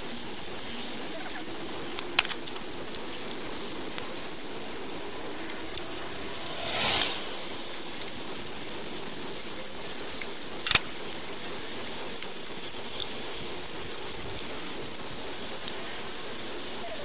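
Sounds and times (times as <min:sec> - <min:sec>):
steady hiss: 0:00.0 - 0:17.0
metallic clicks of hand tools: 0:09.4 - 0:15.0.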